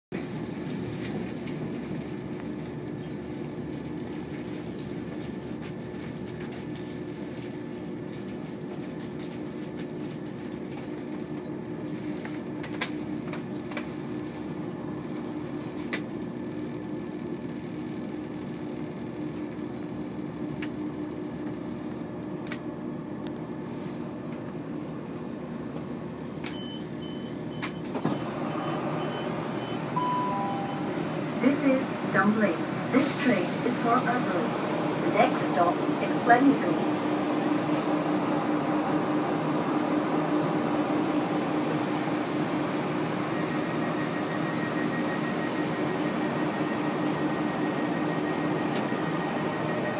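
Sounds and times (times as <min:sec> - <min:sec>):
train engine hum: 0:00.2 - 0:49.9
faint high whistle: 0:30.0 - 0:30.9.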